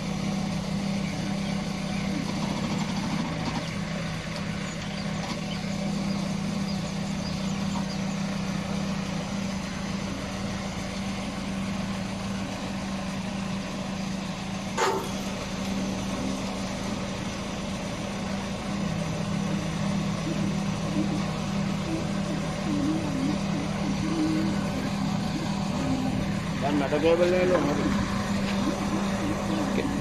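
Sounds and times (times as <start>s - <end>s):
engine running steadily: 0.0s - 30.0s.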